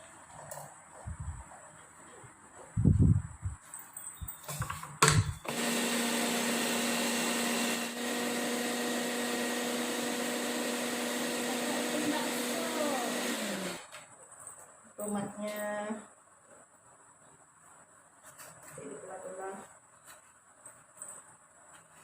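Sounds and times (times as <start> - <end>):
electric blender running: 5.4 - 13.9.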